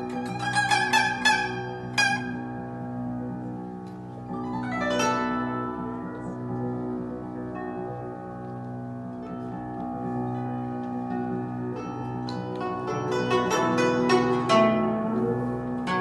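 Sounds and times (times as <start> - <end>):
guzheng glissando: 0.0 - 16.0
guzheng plucked notes: 0.0 - 16.0
piano low notes: 0.0 - 16.0.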